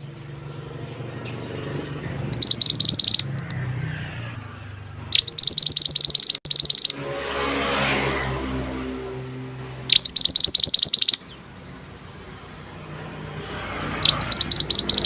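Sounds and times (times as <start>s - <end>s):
bird high-pitched chirps: 2.2s - 3.6s, 5.0s - 7.0s, 9.9s - 12.2s, 14.0s - 15.0s.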